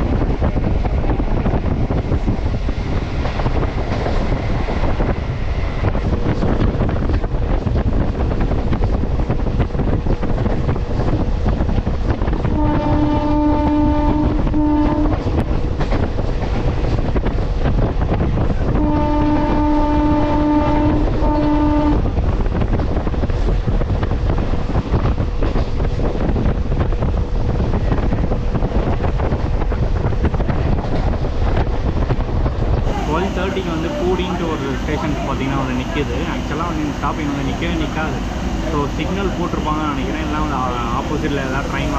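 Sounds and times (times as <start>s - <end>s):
electric train rumble: 0.0s - 41.9s
train horn blasts: 12.4s - 15.5s, 18.7s - 22.1s.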